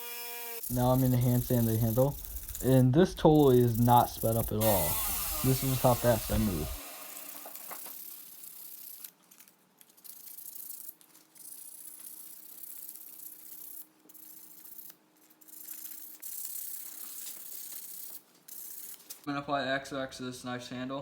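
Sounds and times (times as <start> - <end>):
sandpaper rubbing on wood: 0.6 - 7.8.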